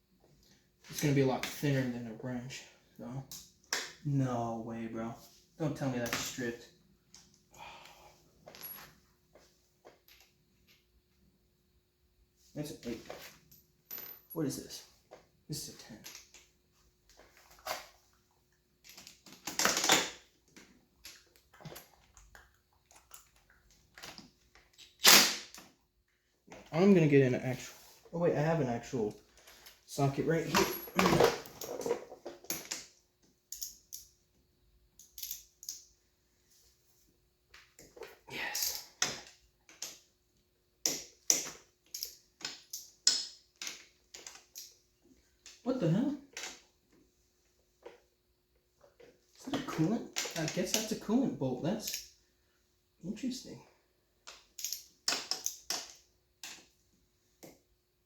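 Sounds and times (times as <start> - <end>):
metal tools clinking and rattling: 29.4 - 32.9, 38.4 - 40.0, 54.3 - 56.0
metal tools clattering: 30.4 - 32.9.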